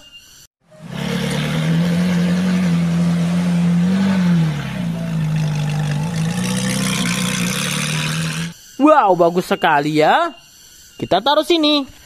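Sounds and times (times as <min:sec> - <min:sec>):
car engine running: 0:00.7 - 0:08.6.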